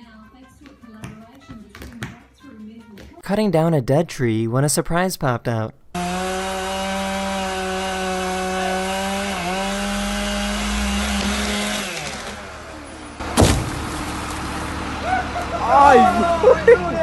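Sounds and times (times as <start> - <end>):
chainsaw cutting wood: 5.9 - 14.9
sharp loud knock: 13.4 - 13.8.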